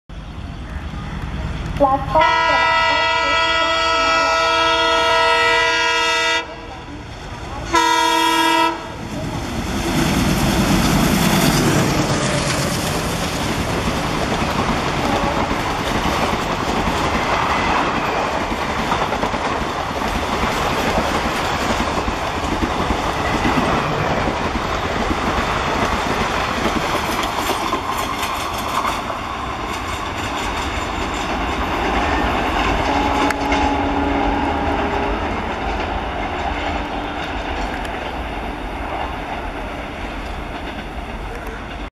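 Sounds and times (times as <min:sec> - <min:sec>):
locomotive engine passing: 0:00.1 - 0:41.9
locomotive horn blast: 0:01.8 - 0:06.7, 0:07.7 - 0:09.0, 0:32.8 - 0:35.2
wheels clattering over rail joints: 0:09.2 - 0:33.8.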